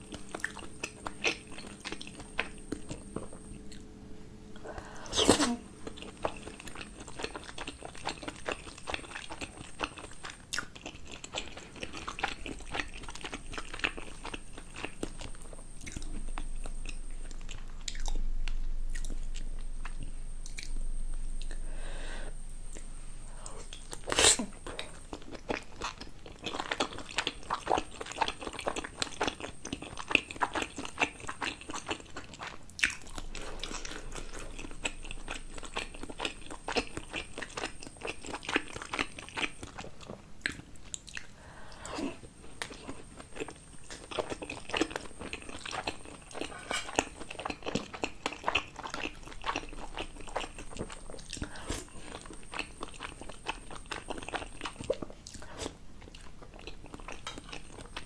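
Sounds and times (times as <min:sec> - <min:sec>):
close chewing mouth sounds: 0:00.0 - 0:03.9, 0:05.1 - 0:21.6, 0:22.7 - 0:58.0.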